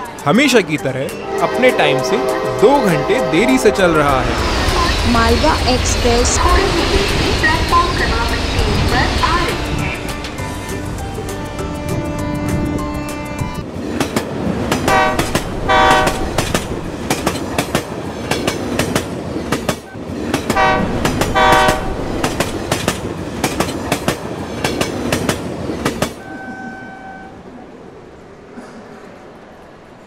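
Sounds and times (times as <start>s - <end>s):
train horn blasts: 1.2s - 5.1s, 11.3s - 13.6s, 14.9s - 16.5s, 19.8s - 22.0s, 26.2s - 27.5s
train wheels clickety-clack: 13.6s - 26.9s.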